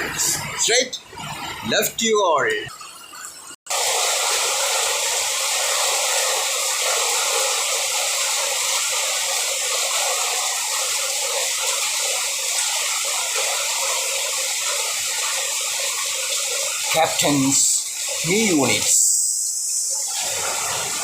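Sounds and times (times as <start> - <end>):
heavy rain hissing: 3.7 - 21.0.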